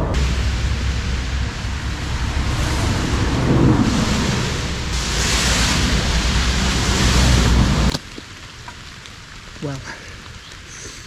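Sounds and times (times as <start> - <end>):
wind buffeting microphone: 0.0 - 7.9.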